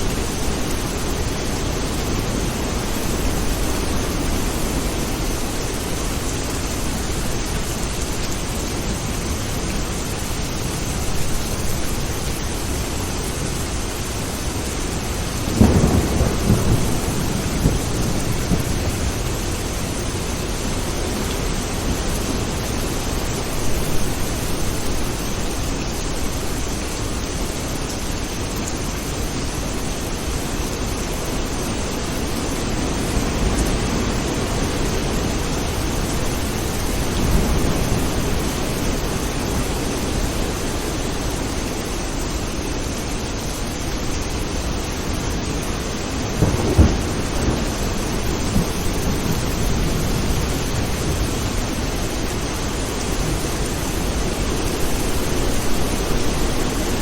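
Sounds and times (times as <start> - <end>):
heavy rain: 0.0 - 57.0
thunder rumbling: 15.4 - 25.0, 46.1 - 57.0
sharp thunderclap: 15.6 - 19.6, 46.4 - 51.9.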